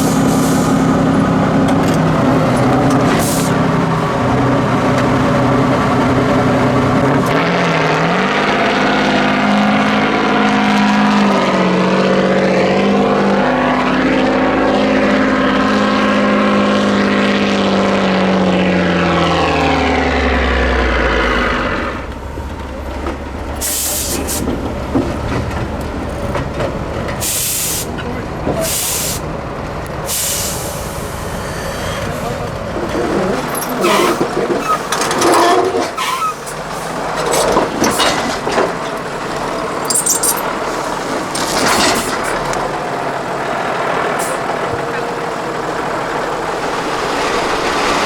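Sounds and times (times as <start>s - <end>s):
air brake hisses: 0.0s - 0.9s, 3.2s - 3.6s, 23.6s - 24.5s, 27.2s - 27.9s, 28.6s - 29.2s, 30.1s - 32.3s
diesel truck engine revving: 0.0s - 48.0s.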